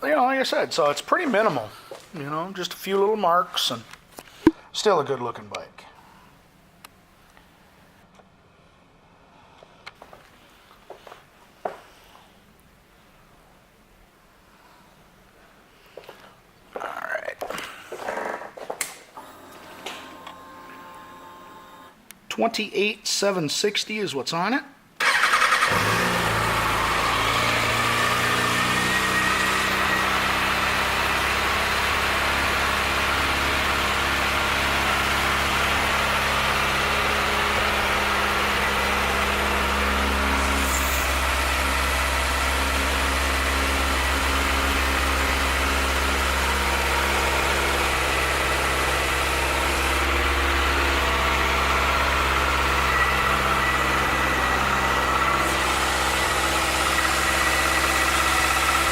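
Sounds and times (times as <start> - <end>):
motorcycle engine starting and idling: 25.0 - 58.9.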